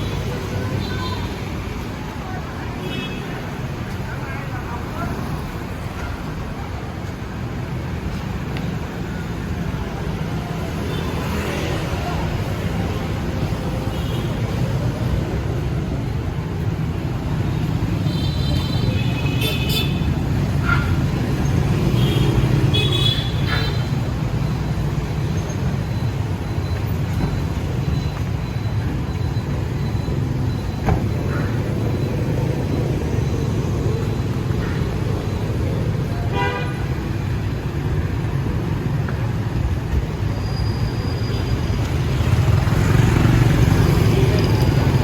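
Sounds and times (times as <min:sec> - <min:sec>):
city street traffic rumble: 0:00.0 - 0:45.0
vehicle horn toots: 0:36.3 - 0:36.9.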